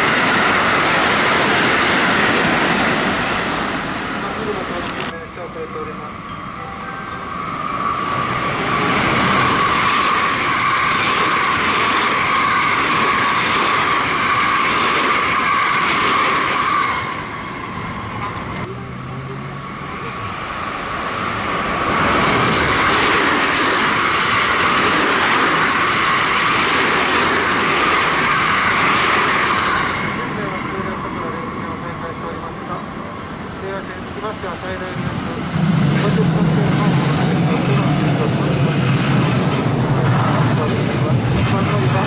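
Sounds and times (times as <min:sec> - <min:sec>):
train wheels rolling on rails: 0:00.0 - 0:05.2, 0:07.3 - 0:18.7, 0:19.6 - 0:42.0
steady high ringing: 0:05.2 - 0:11.6.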